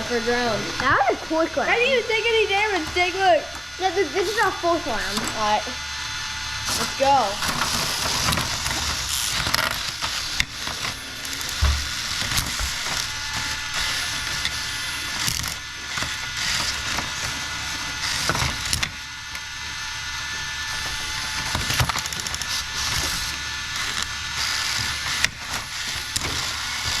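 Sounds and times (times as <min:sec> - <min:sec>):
small motors whirring: 0:00.0 - 0:27.0
plastic robots clattering: 0:06.7 - 0:19.0, 0:20.7 - 0:27.0.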